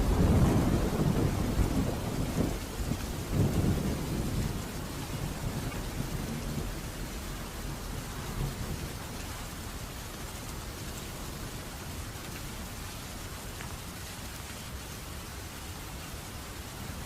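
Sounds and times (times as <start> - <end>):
thunder rumbling: 0.0 - 9.1
steady rain: 0.0 - 17.0.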